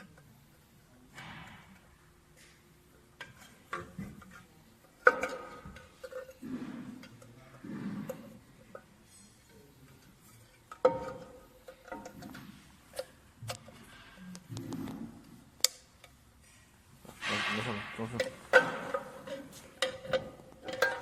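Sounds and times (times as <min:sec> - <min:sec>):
metal parts knocking and clinking: 0:17.2 - 0:21.0.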